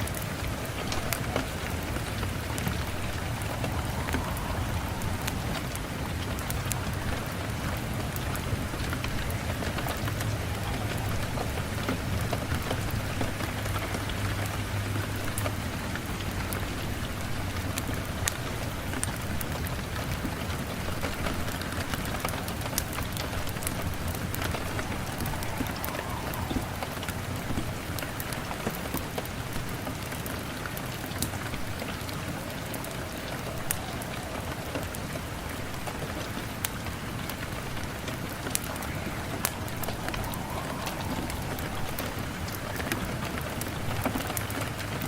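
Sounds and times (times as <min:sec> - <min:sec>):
steady rain: 0:00.0 - 0:45.0
wood fire crackling: 0:00.0 - 0:45.0.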